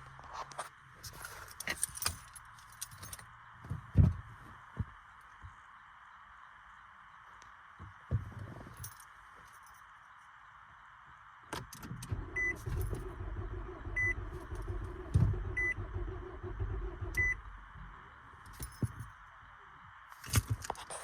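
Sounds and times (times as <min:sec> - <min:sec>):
sharp clicks: 0:11.6 - 0:17.5
car engine cranking: 0:11.8 - 0:19.1
short beeps: 0:12.2 - 0:17.4.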